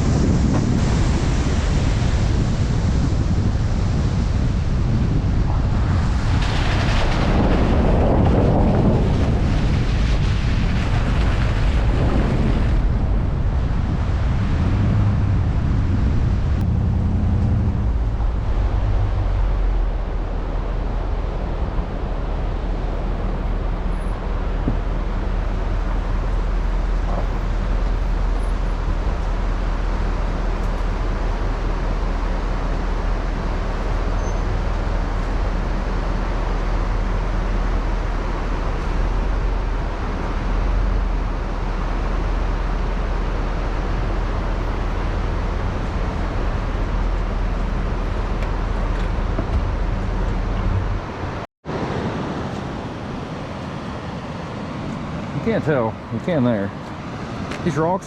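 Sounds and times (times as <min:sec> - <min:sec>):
low hum: 0:00.0 - 0:51.5
river rushing over rapids: 0:12.8 - 0:58.0.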